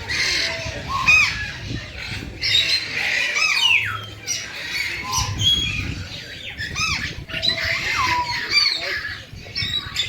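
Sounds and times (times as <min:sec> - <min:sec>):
birds squawking: 0:00.0 - 0:10.0.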